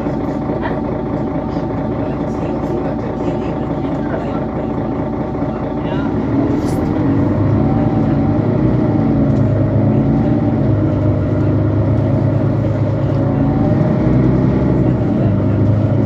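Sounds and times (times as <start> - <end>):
bus diesel engine droning: 0.0 - 16.0.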